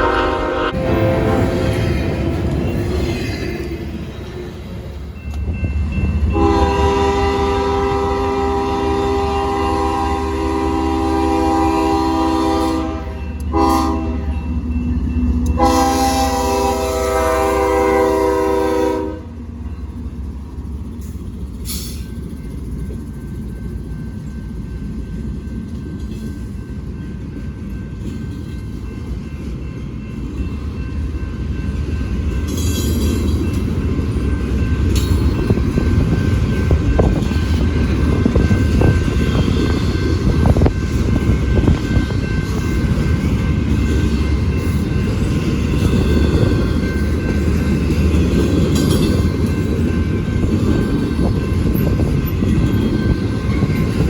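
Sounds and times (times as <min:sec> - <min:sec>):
locomotive air horn blasts: 0:00.0 - 0:02.4, 0:06.3 - 0:14.3, 0:15.6 - 0:19.4
train rumbling: 0:00.0 - 0:54.0.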